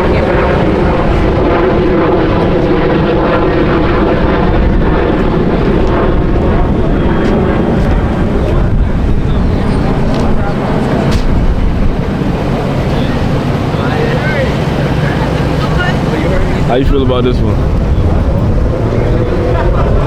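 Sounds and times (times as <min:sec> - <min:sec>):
car engine droning: 0:05.2 - 0:20.0.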